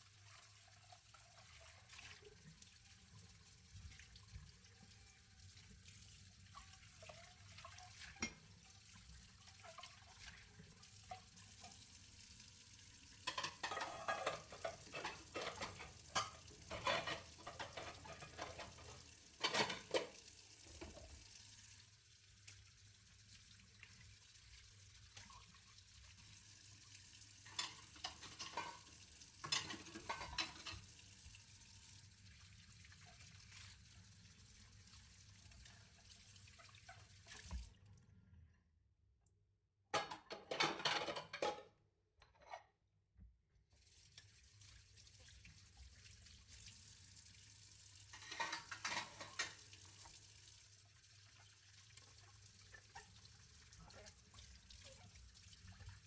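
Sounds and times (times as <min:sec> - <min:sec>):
dishes clinking and clattering: 0:07.0 - 0:08.5, 0:13.2 - 0:21.2, 0:27.4 - 0:30.9, 0:40.0 - 0:42.7, 0:48.1 - 0:49.7.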